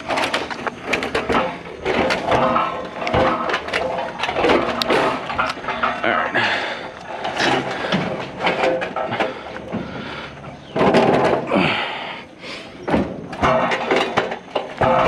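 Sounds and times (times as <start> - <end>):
metal shell clunking and knocking: 0.0 - 6.2, 6.9 - 10.0, 12.9 - 15.0
metal scraping on ground: 0.0 - 11.8, 13.2 - 15.0
metal grinding: 0.0 - 12.0, 13.0 - 15.0.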